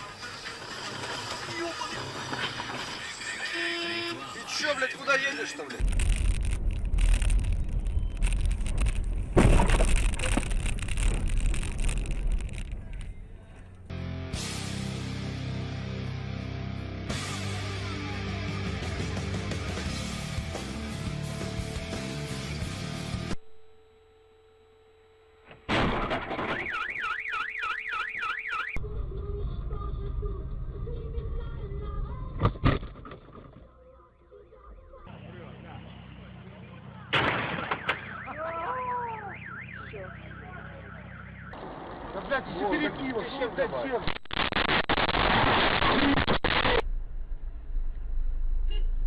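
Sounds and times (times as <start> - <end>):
engine and road noise: 0.0 - 23.4, 28.8 - 49.0
car rumble with crackling: 5.8 - 13.9
car alarm wailing: 26.4 - 28.8, 37.6 - 41.6
loud noisy burst: 44.1 - 47.7.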